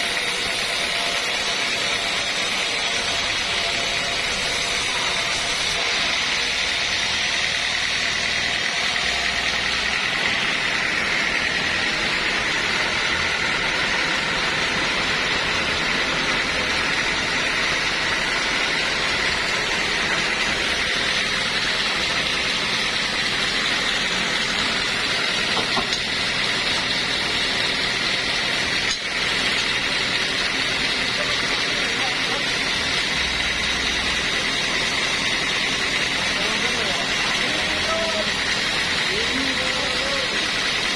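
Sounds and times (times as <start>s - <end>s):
sawmill machinery whining: 0.0s - 40.9s.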